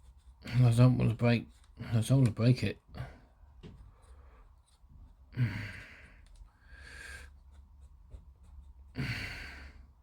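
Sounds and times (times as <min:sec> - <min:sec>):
quiet breathing: 0:02.8 - 0:10.0
man breathing out heavily: 0:05.3 - 0:07.3, 0:09.0 - 0:10.0.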